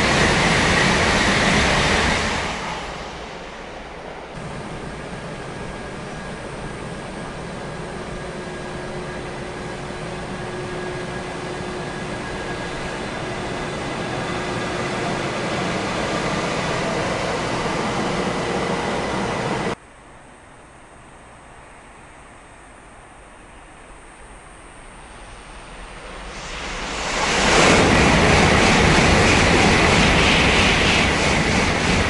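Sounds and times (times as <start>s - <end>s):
high-speed train running noise: 0.0s - 32.0s.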